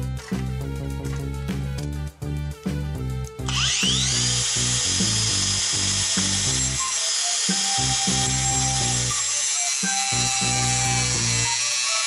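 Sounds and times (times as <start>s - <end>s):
angle grinder whine: 3.5s - 12.0s.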